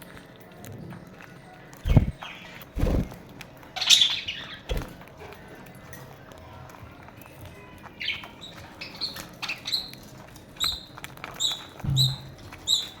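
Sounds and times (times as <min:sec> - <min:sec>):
parrots chirping: 0:01.8 - 0:05.0, 0:08.0 - 0:13.0
low thump: 0:11.9 - 0:12.5.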